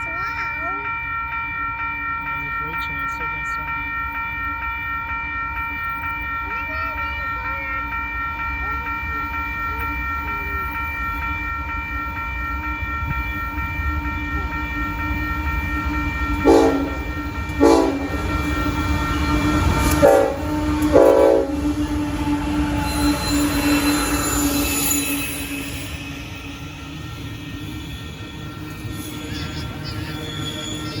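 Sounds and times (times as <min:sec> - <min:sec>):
crossing signal ringing: 0:00.0 - 0:31.0
freight train rumbling: 0:00.0 - 0:31.0
train horn blasts: 0:16.4 - 0:18.8, 0:19.5 - 0:24.2
wheel squeal: 0:22.8 - 0:31.0.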